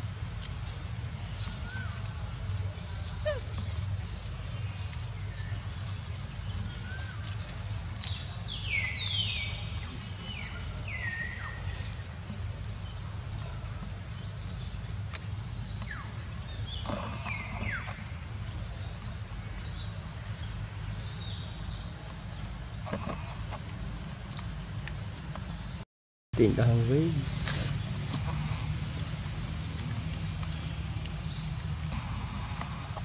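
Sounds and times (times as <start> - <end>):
birds chirping: 0.0 - 25.8, 26.4 - 33.0.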